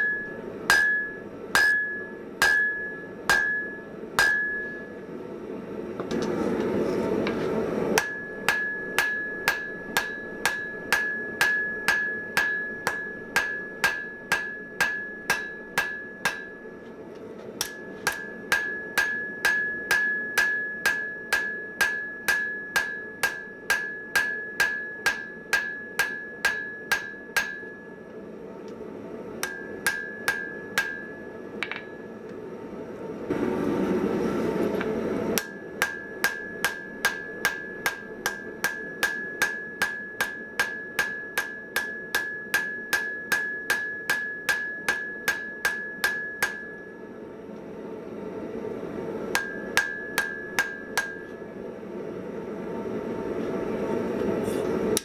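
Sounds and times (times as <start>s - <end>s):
hammer striking steel on anvil: 0.0s - 5.0s, 7.3s - 17.0s, 17.6s - 28.2s, 29.4s - 32.1s, 34.8s - 47.1s, 49.3s - 51.4s.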